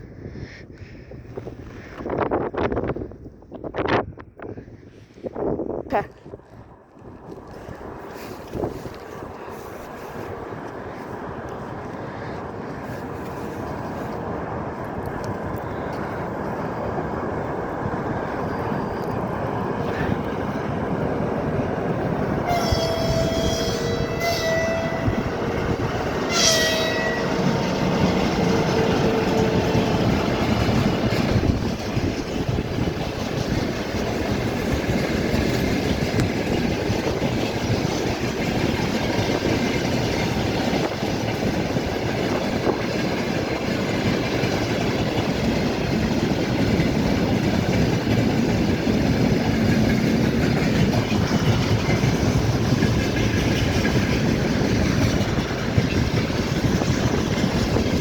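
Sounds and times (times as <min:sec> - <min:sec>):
train rumbling on rails: 0:00.0 - 0:58.0
two-tone train horn: 0:22.4 - 0:29.8.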